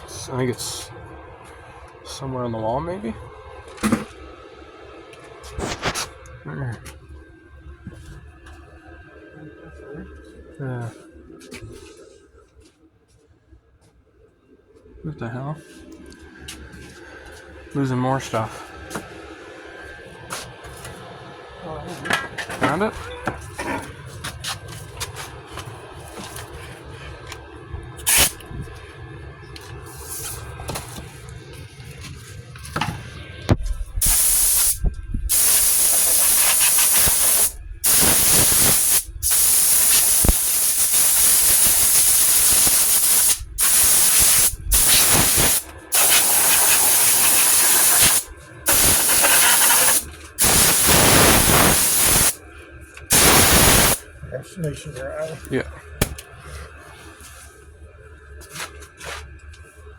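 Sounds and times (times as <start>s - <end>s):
compressed air hissing: 28.1s - 28.4s, 34.0s - 52.4s, 53.1s - 54.0s.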